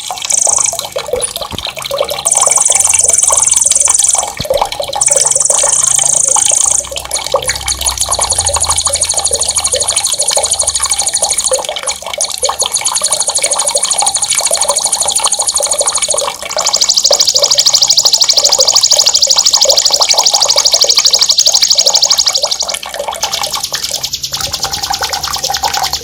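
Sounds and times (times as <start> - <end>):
songbird trilling: 0.0 - 1.6, 2.2 - 6.9, 16.7 - 26.0
water running and splashing: 0.0 - 26.0.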